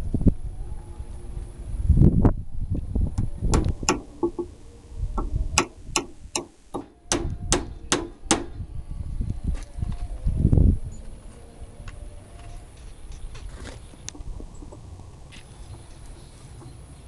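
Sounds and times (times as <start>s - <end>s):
hammer driving nails into wood: 3.5s - 4.5s, 5.2s - 8.6s.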